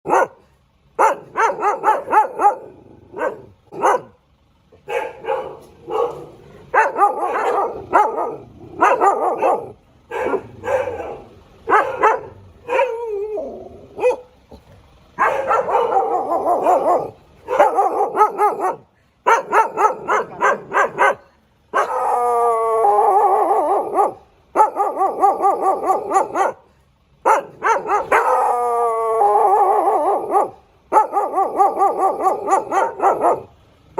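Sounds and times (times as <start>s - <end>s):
dog barking: 0.0s - 4.2s, 4.8s - 13.1s, 14.0s - 14.4s, 15.2s - 22.2s, 23.0s - 28.6s, 29.4s - 33.5s
dog howling: 21.8s - 26.4s, 27.6s - 33.5s.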